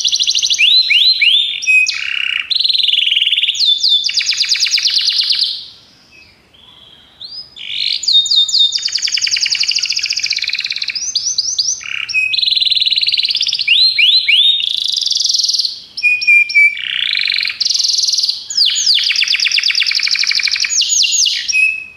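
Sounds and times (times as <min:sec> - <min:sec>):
canary singing trills: 0:00.0 - 0:21.9.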